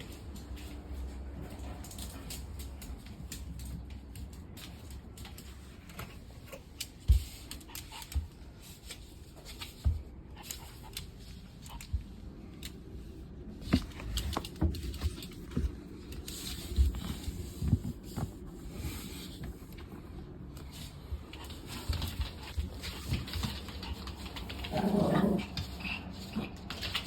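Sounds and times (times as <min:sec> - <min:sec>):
dog nails clicking on hard floor: 0:00.0 - 0:12.9, 0:21.3 - 0:27.0.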